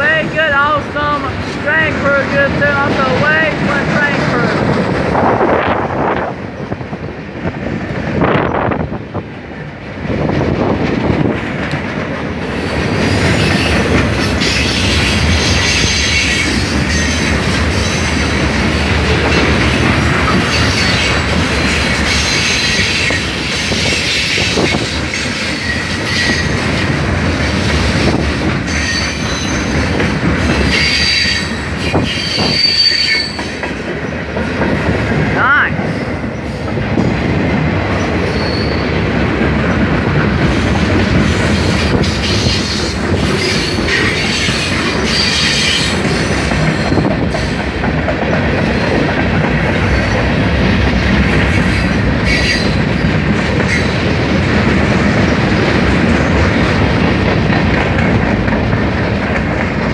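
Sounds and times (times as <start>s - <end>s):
train wheels rumbling on rail: 0.0s - 59.9s
wheel squeals: 30.7s - 33.6s, 38.3s - 38.9s.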